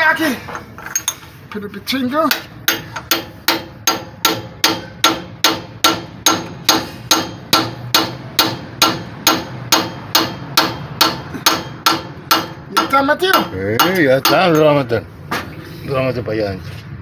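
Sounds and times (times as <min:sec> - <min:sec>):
hammer striking metal socket: 0:02.3 - 0:14.8.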